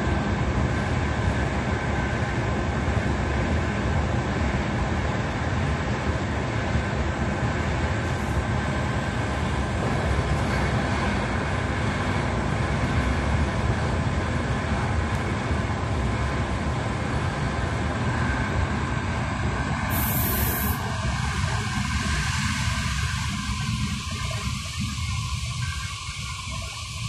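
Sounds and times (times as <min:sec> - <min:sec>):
train wheels rumbling on track: 0:00.0 - 0:27.0
high hiss: 0:19.9 - 0:20.9.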